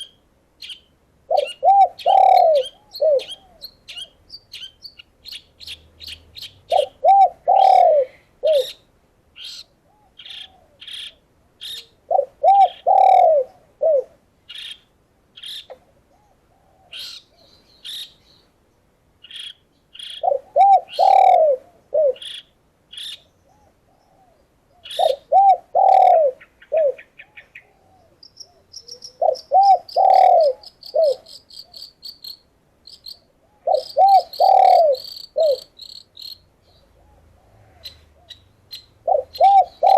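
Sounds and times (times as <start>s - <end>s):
small birds chirping: 0.0s - 13.6s, 14.4s - 39.9s
doves cooing: 1.3s - 4.1s, 6.7s - 8.8s, 9.8s - 14.2s, 15.8s - 17.5s, 20.1s - 22.4s, 23.4s - 31.8s, 33.2s - 35.8s, 36.8s - 39.9s.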